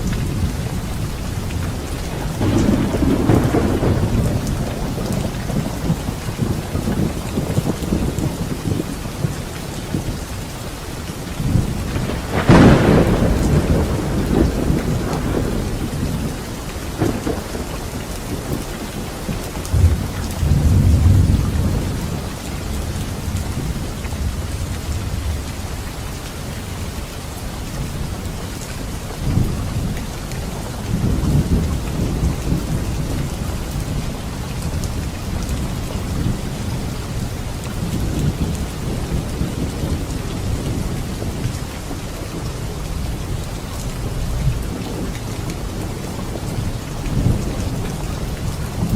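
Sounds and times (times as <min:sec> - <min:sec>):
low rolling thunder: 0:00.0 - 0:10.2, 0:11.3 - 0:26.0, 0:29.2 - 0:48.9
heavy rain: 0:00.0 - 0:48.9
sharp thunderclap: 0:02.4 - 0:09.3, 0:11.4 - 0:23.0.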